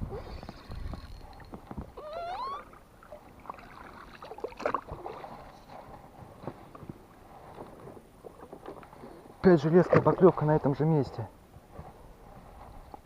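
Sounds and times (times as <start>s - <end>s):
short rising squeak: 2.0s - 2.8s.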